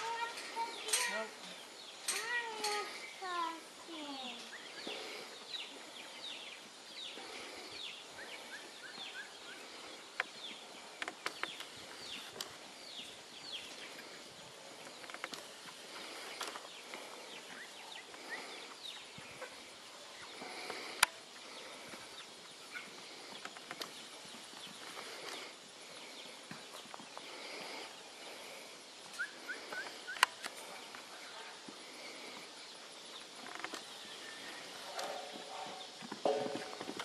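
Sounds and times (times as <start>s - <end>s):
birds chirping: 0.0s - 37.0s
sharp clicks: 30.1s - 30.6s.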